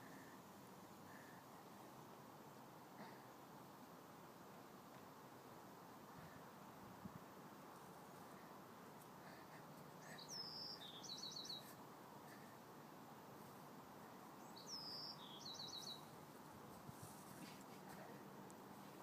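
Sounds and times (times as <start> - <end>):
steady background hiss: 0.0 - 19.0
small songbird singing: 10.0 - 11.8, 14.4 - 16.2.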